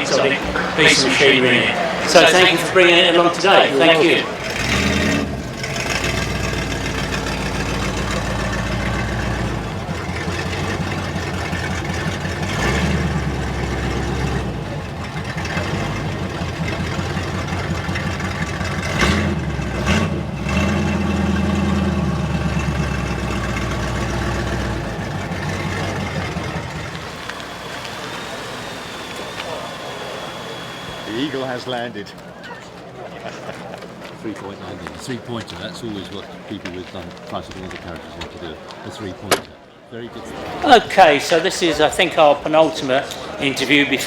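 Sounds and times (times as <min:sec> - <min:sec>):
car engine revving: 0:00.0 - 0:32.1.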